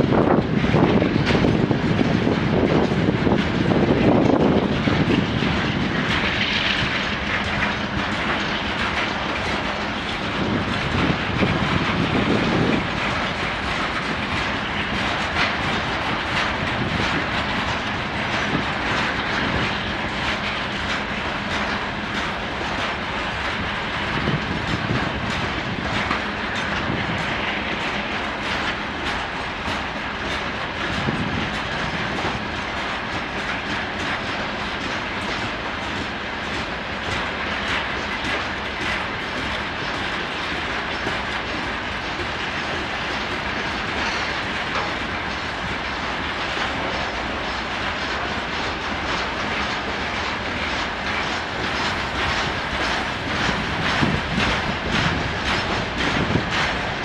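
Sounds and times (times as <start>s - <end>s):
train wheels clattering on rails: 0.0s - 57.0s
heavy low rumble: 51.0s - 57.0s.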